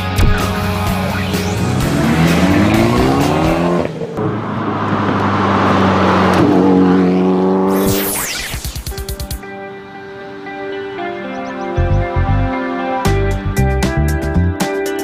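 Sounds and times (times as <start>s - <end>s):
sports car engine revving: 0.9s - 7.8s.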